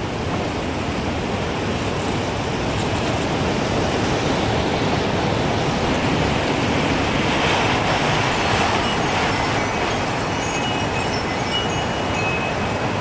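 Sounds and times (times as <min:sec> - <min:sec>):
strong gusting wind: 0:00.0 - 0:13.0
wind chime tinkling: 0:07.8 - 0:13.0.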